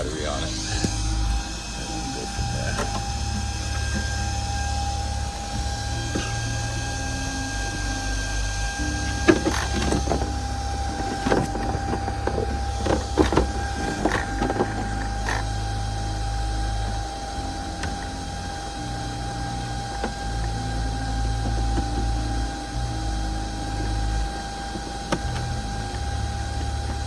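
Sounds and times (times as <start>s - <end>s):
steady low hum: 0.0s - 27.0s
thin whine: 0.0s - 27.0s
clicks and knocks of handling: 8.9s - 15.6s.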